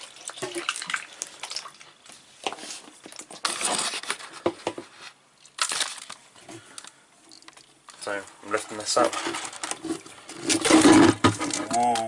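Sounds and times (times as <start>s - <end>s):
scraping rustles: 2.5s - 5.2s, 8.0s - 12.0s.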